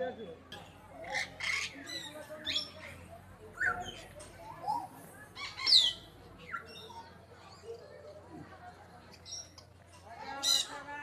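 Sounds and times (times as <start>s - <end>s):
birds chirping: 0.9s - 7.9s.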